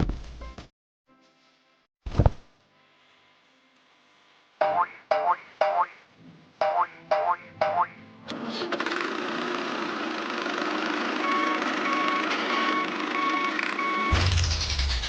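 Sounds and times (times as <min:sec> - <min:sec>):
truck engine running: 0:08.6 - 0:15.0
reversing alarm beeping: 0:11.2 - 0:14.3.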